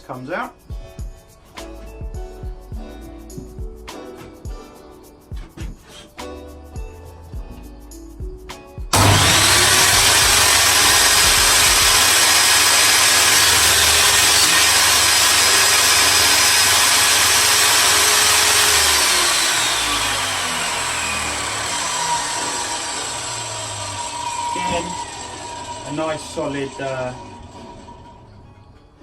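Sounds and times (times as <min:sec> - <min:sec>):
table saw whining: 0:08.9 - 0:28.3.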